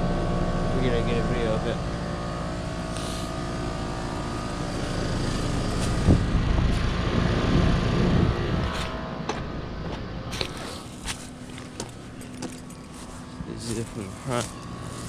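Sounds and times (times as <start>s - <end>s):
compressor hum: 0.0s - 15.0s
fan whir: 0.0s - 15.0s
low rumble: 1.8s - 10.3s.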